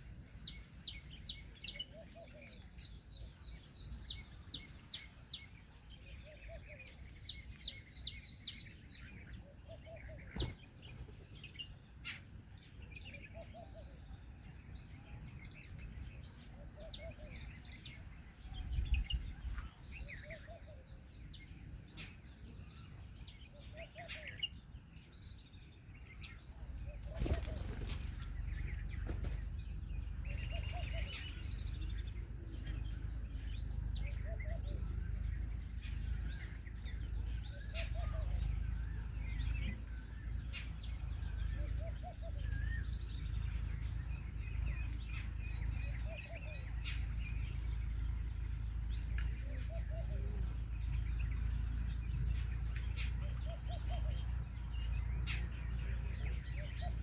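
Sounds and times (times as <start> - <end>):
small birds chirping: 0.0 - 57.0
wing flaps: 27.0 - 29.5.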